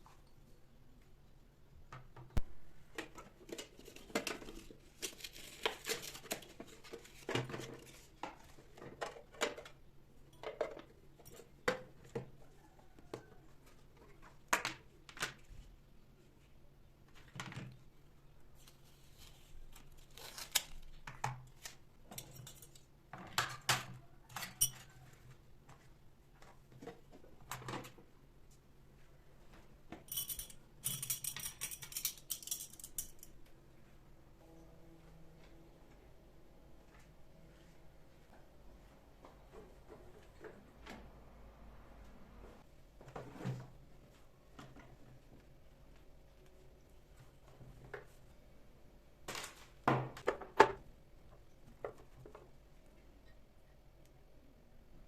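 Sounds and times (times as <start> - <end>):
faint low hum: 23.9 - 49.3
household objects clinking and tapping: 30.0 - 33.3.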